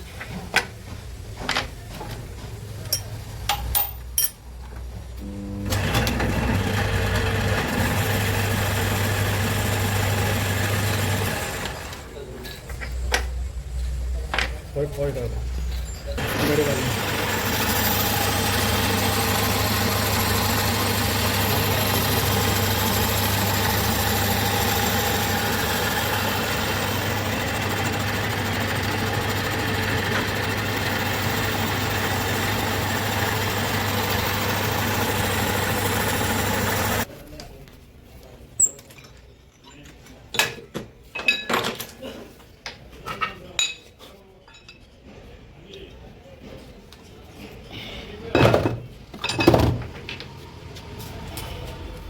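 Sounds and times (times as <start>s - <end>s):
boring machine humming: 5.2s - 12.1s, 16.2s - 37.1s.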